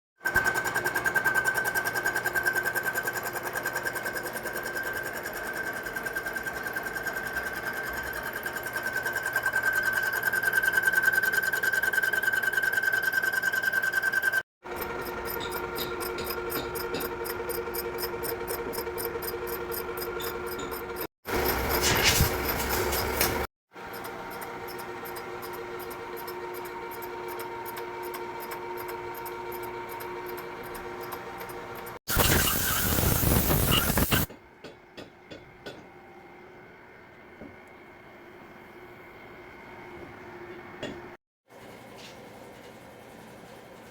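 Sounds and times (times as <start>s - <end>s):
cutter ticking: 0.4s - 21.6s, 23.8s - 34.3s.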